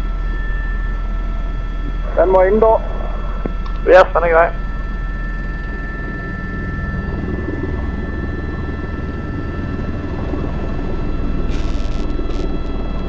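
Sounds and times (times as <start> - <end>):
helicopter engine and rotor noise: 0.0 - 13.0.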